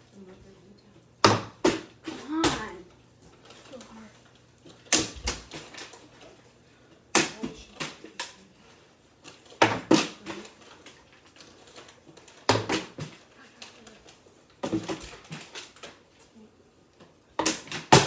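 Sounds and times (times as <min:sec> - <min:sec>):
plastic bottle hitting and bouncing: 0:01.2 - 0:02.7, 0:04.9 - 0:06.0, 0:07.1 - 0:08.3, 0:09.6 - 0:10.5, 0:12.4 - 0:13.2, 0:14.6 - 0:15.6, 0:17.4 - 0:18.0.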